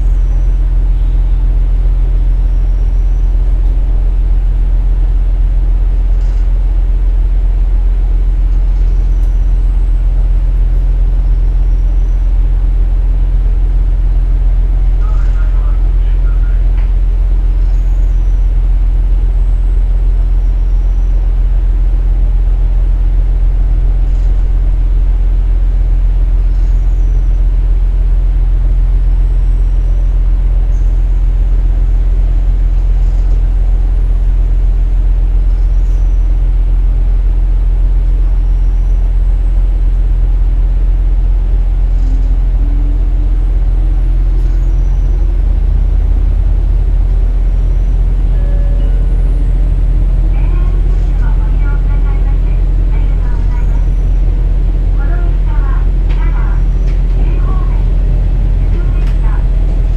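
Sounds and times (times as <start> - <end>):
diesel railcar engine drone: 0.0 - 59.9
faint rising tone: 41.9 - 50.3.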